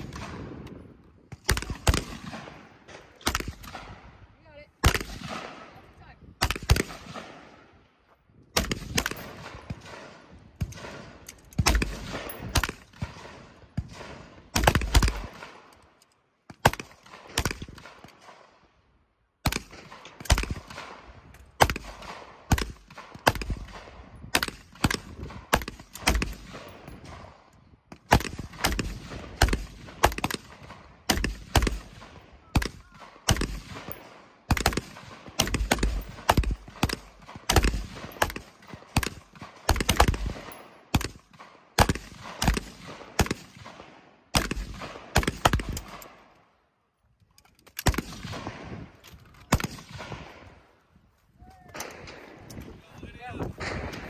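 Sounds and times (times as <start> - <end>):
rapid gunfire: 28.1 - 41.2.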